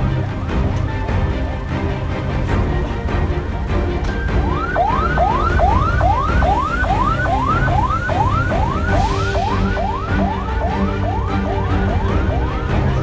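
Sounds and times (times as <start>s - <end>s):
emergency vehicle yelp siren: 3.8s - 13.0s.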